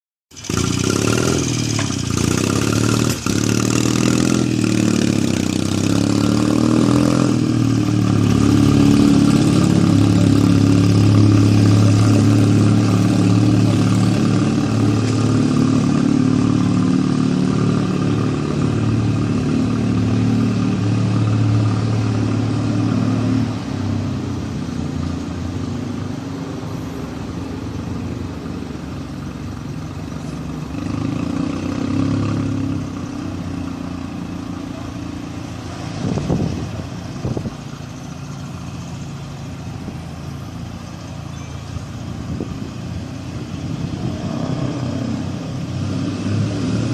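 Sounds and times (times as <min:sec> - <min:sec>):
motorcycle engine running: 0:00.3 - 0:22.8.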